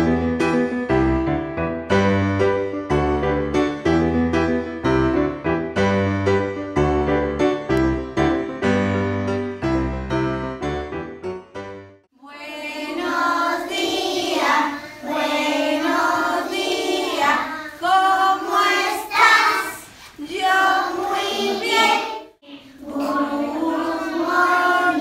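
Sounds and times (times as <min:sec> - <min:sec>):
piano music: 0:00.0 - 0:12.1
children singing in unison: 0:12.2 - 0:25.0.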